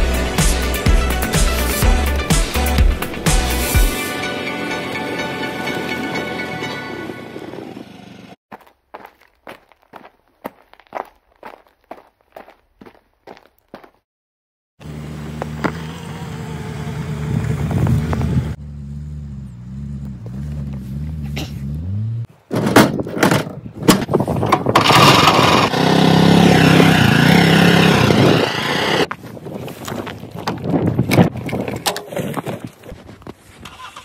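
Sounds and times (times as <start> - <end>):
car engine running: 14.8 - 22.3.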